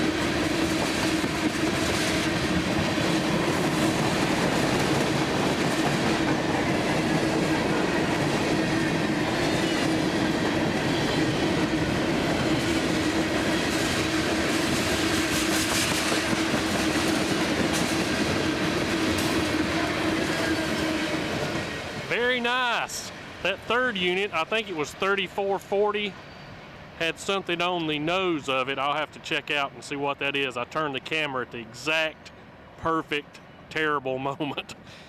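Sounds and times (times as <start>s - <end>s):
train wheels clattering on rails: 0.0s - 22.1s
train drone: 0.0s - 35.0s.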